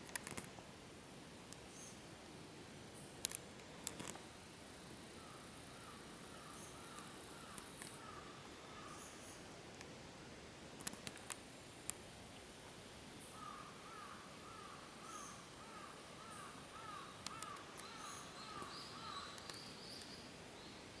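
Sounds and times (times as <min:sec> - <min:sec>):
faint steady hiss: 0:00.0 - 0:21.0
bird calling: 0:13.4 - 0:20.3
sharp clicks: 0:17.2 - 0:17.9.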